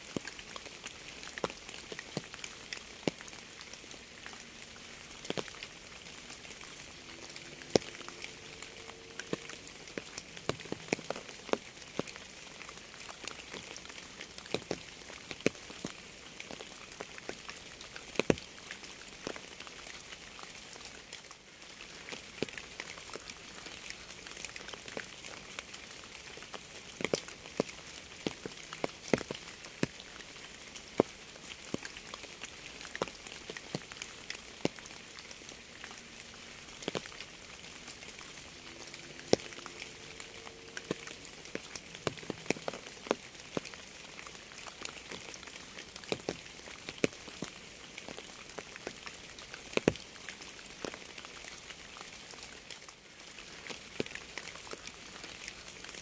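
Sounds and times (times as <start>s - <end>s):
raindrops ticking: 0.0s - 56.0s
rain hissing: 0.7s - 14.4s, 31.8s - 45.2s.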